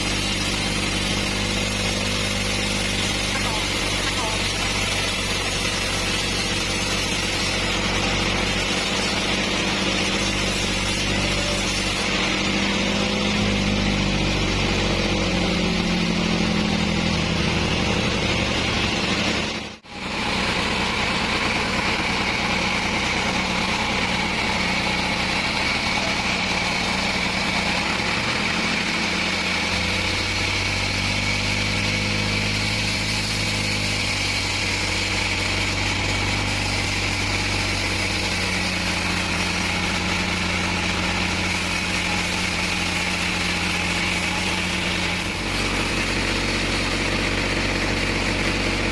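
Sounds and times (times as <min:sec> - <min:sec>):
sawmill engine running: 0:00.0 - 0:48.9.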